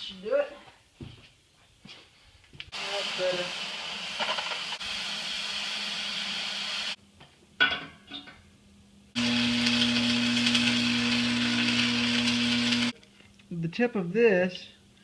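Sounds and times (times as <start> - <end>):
gas cutting torch hissing: 2.7 - 7.0, 9.2 - 12.9.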